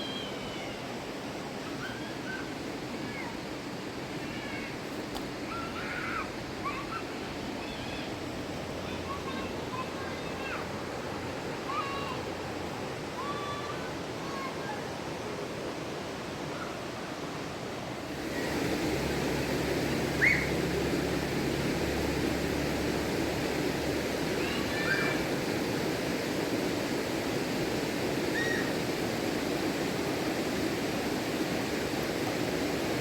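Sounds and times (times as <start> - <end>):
rushing river water: 0.0 - 33.0
bird chirps: 20.2 - 20.6.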